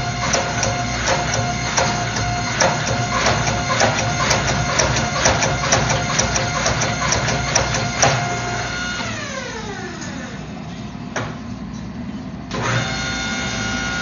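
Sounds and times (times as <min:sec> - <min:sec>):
hydraulic pump motor humming: 0:00.0 - 0:10.6, 0:12.5 - 0:14.0
sharp ticks and knocks: 0:00.2 - 0:08.2
motor spinning down: 0:08.0 - 0:10.4.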